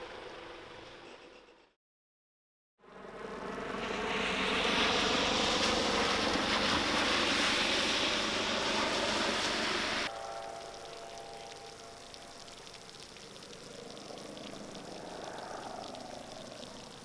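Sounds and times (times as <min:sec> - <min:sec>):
motor vehicle engine and road noise: 0:02.8 - 0:10.2.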